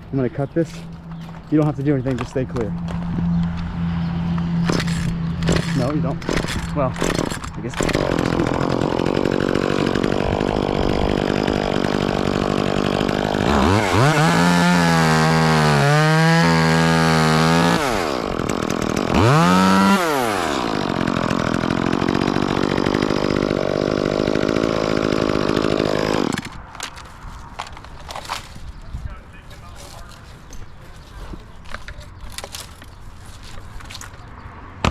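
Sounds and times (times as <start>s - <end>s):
chainsaw cutting wood: 4.4s - 28.6s, 31.7s - 34.9s.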